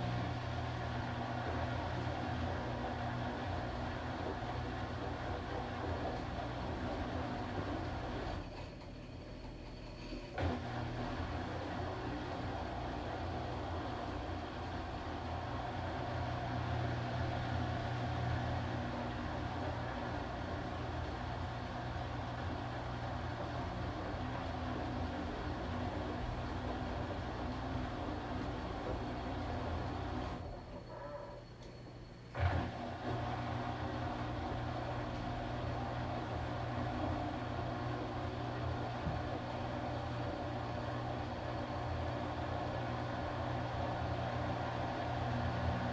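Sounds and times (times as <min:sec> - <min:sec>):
washing machine running: 0:00.0 - 0:31.4, 0:32.2 - 0:45.9.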